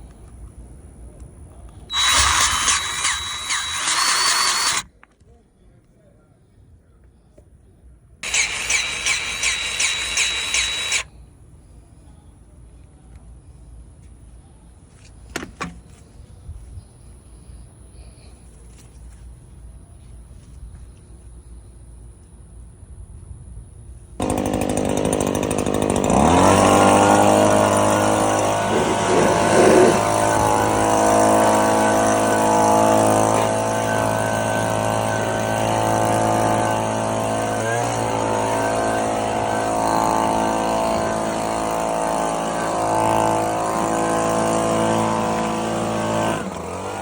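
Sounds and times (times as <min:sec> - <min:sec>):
lawn tractor engine revving: 0:01.9 - 0:04.9, 0:08.2 - 0:11.1, 0:24.2 - 0:47.0.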